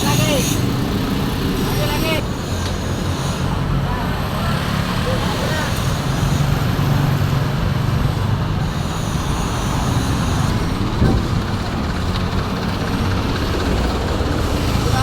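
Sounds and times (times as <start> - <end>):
vehicle engine humming: 0.0 - 15.0
loud knock: 10.6 - 12.4.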